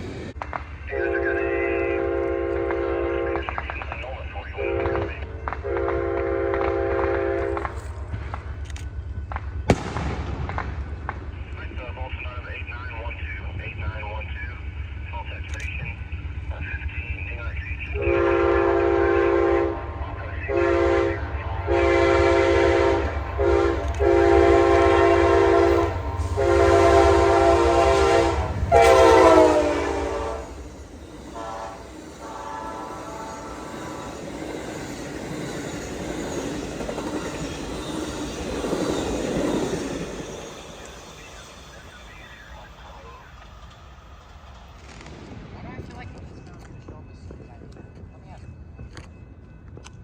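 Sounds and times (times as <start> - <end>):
locomotive engine rumble: 0.0 - 50.0
train cars rumbling by: 0.0 - 50.0
locomotive air horn blasts: 0.9 - 3.5, 4.6 - 7.8, 17.9 - 33.9.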